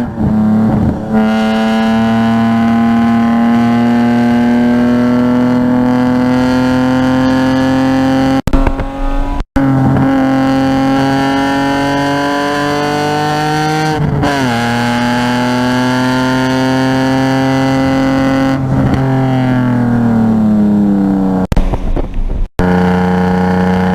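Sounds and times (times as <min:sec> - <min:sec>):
car engine accelerating hard: 0:00.0 - 0:21.5, 0:22.6 - 0:23.9.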